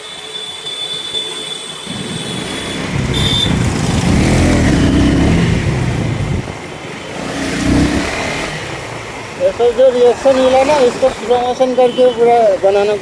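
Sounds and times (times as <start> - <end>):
motorcycle engine running: 1.9 - 11.5.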